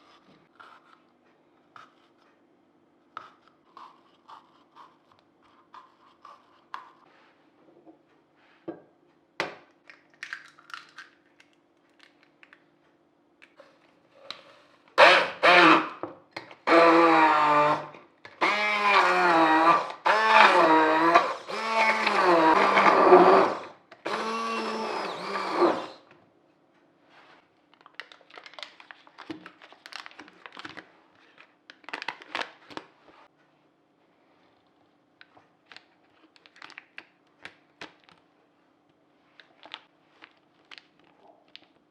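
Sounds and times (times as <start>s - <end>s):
kitchen blender pulsing: 16.7s - 26.0s.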